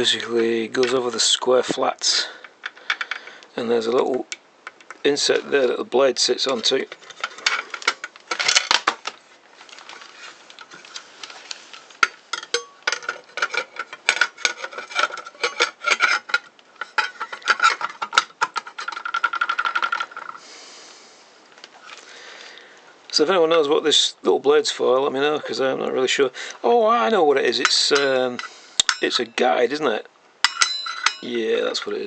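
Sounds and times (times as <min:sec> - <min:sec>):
metal parts clinking and scraping: 0:02.2 - 0:20.4, 0:27.5 - 0:29.3, 0:30.4 - 0:32.0.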